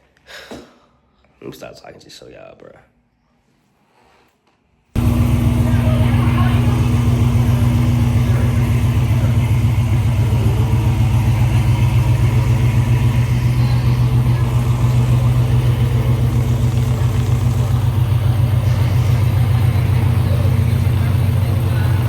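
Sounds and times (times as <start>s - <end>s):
car engine rumbling: 5.0s - 22.0s.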